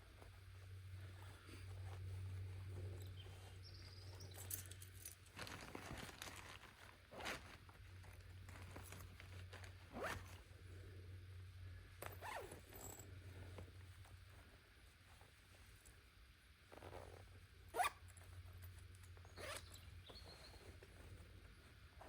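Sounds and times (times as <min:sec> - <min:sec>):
steady low hum: 0:00.0 - 0:22.0
zip being pulled: 0:09.9 - 0:10.4, 0:12.2 - 0:12.6, 0:17.8 - 0:18.0, 0:19.4 - 0:19.7.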